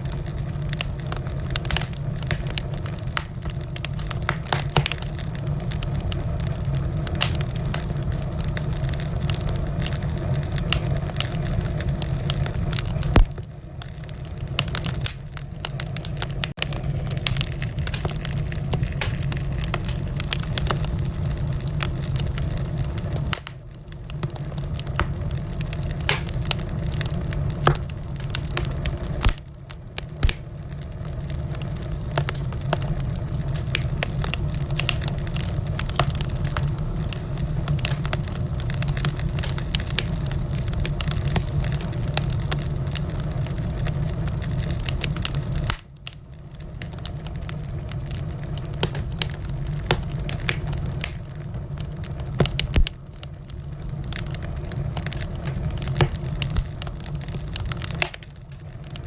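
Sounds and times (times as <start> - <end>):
low rumble of flames: 0.0 - 59.0
wood fire crackling: 0.0 - 59.0
loud wood snaps: 4.2 - 5.1, 17.2 - 20.0, 24.9 - 25.3, 26.0 - 26.6, 30.2 - 30.5, 57.8 - 58.3.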